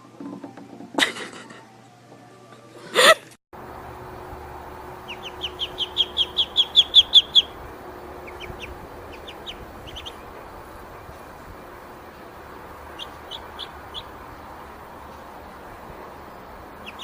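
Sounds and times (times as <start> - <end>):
bird chirping: 3.8 - 17.0.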